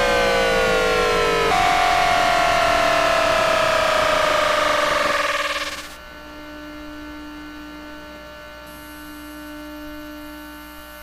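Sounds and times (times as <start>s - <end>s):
electrical hum: 0.0s - 7.7s
train inverter whine through radio: 0.0s - 11.0s.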